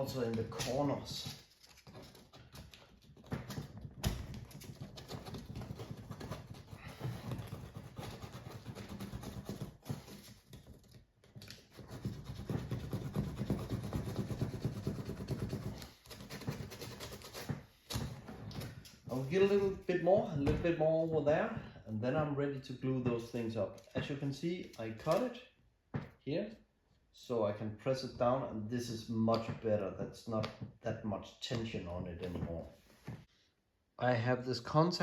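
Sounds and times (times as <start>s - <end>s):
sandpaper scraping rubber: 4.8s - 10.5s, 11.6s - 17.6s.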